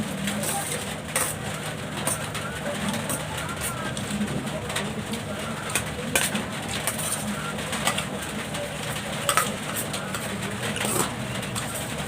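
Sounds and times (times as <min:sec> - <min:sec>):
utensils clicking against a plate: 0:00.3 - 0:01.4, 0:05.6 - 0:08.2, 0:08.8 - 0:12.0.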